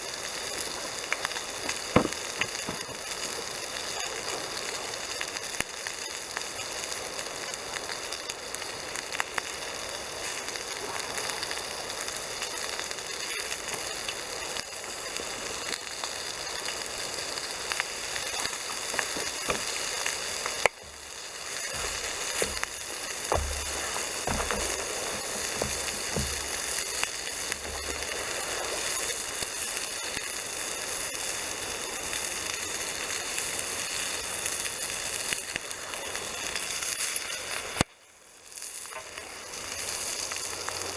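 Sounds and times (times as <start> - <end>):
campfire crackling: 0.0 - 40.9
food sizzling in a frying pan: 0.0 - 40.9
low knocks: 21.7 - 26.8.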